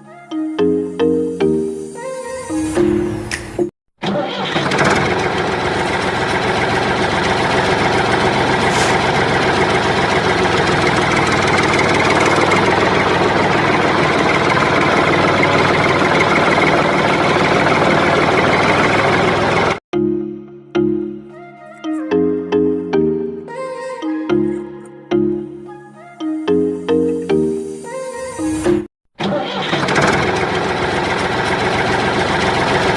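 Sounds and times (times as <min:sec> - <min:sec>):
engine idling: 0:04.4 - 0:19.8, 0:29.6 - 0:32.9.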